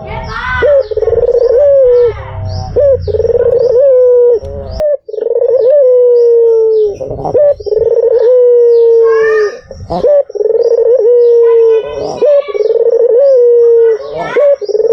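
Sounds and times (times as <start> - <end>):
dove cooing: 0.0 - 14.9
small birds chirping faintly: 0.0 - 14.9.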